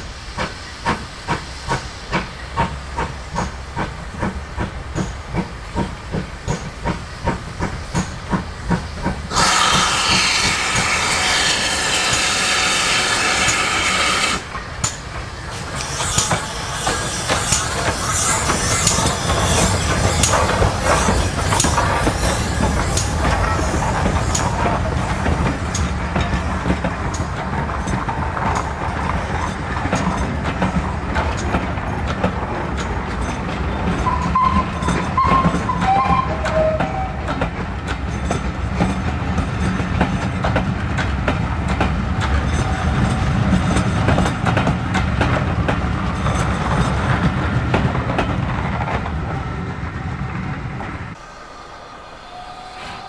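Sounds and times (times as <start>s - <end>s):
wheels clicking over rail joints: 0.0s - 49.8s
train coaches rumbling: 0.0s - 53.0s
wheel squeal: 33.3s - 37.4s.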